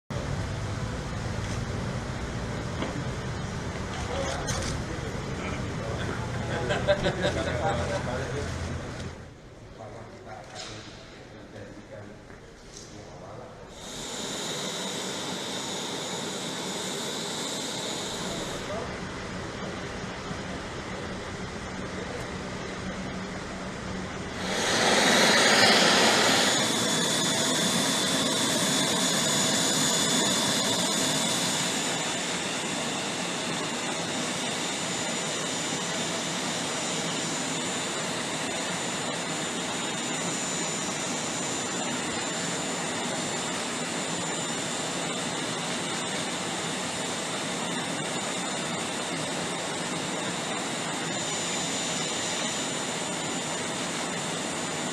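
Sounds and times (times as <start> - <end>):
jet engines with turbine whine: 0.1 - 11.9, 12.6 - 54.9.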